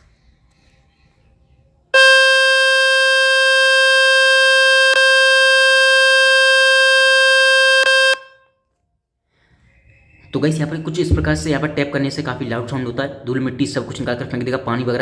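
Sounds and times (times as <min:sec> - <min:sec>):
loud buzzing tone from speaker: 0:02.0 - 0:08.4.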